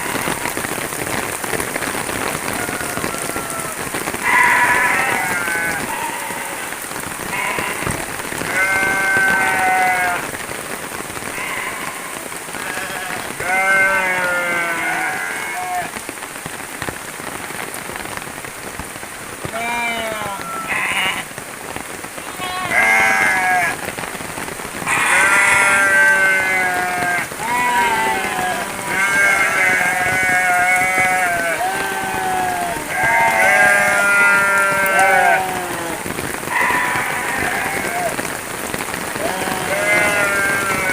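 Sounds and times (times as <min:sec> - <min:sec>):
steady rain falling: 0:00.0 - 0:40.9
animal bleating: 0:02.6 - 0:10.2, 0:11.4 - 0:15.9, 0:19.5 - 0:21.3, 0:22.2 - 0:23.8, 0:24.9 - 0:38.2, 0:39.2 - 0:40.9.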